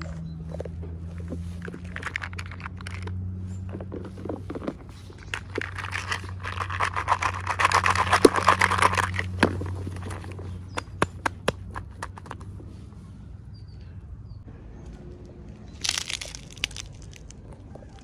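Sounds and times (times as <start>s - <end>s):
plastic packaging crinkling: 5.2s - 10.3s, 15.8s - 17.5s.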